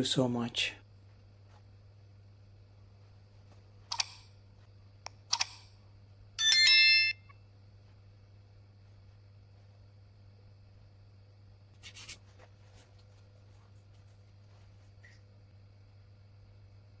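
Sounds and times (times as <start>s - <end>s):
faint steady hum: 0.0s - 17.0s
bright ringing chime: 6.4s - 7.4s.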